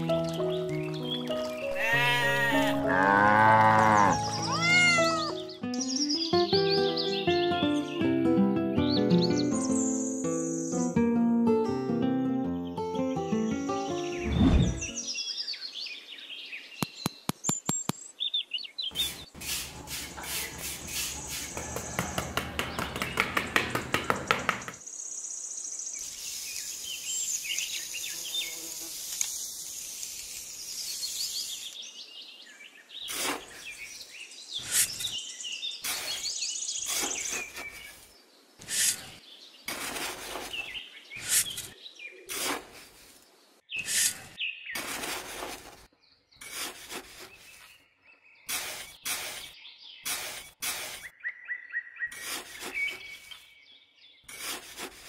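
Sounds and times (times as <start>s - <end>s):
birds chirping: 0.0s - 8.2s, 12.5s - 28.7s, 29.4s - 44.9s, 45.7s - 54.4s
trowel scraping damp sand: 18.9s - 22.2s, 33.0s - 33.9s, 34.6s - 35.2s, 35.8s - 47.8s, 48.4s - 51.1s, 52.1s - 53.5s, 54.3s - 55.0s.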